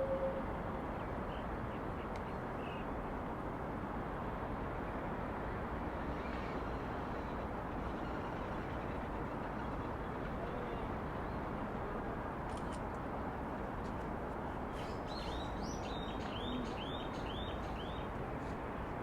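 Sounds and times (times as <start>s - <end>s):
held tone: 0.0s - 0.4s
distant traffic hum: 0.0s - 19.0s.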